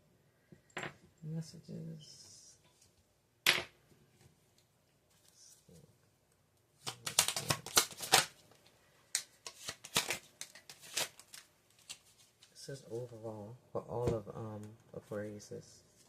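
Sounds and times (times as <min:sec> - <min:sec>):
cards being shuffled: 0:06.8 - 0:08.4, 0:09.1 - 0:12.6.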